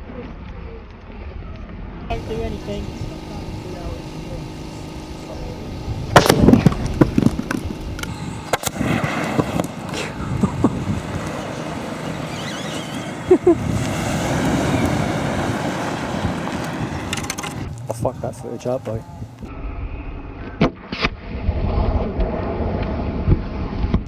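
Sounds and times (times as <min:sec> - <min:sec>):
battery hissing rush: 0:02.1 - 0:19.5
battery popping and crackling: 0:02.8 - 0:15.0.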